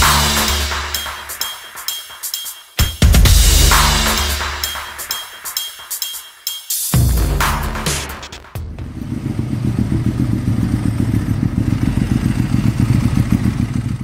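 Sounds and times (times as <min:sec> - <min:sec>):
music: 0:00.0 - 0:08.9
engine low pulsing: 0:08.6 - 0:14.0.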